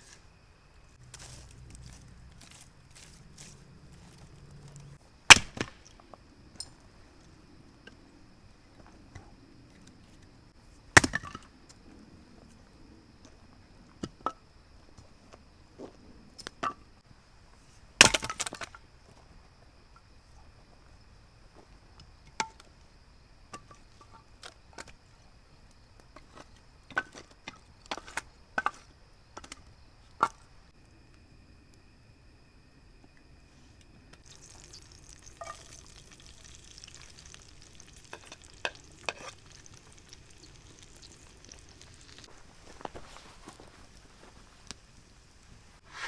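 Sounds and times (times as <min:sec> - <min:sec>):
loud cracks: 0:05.3 - 0:05.9.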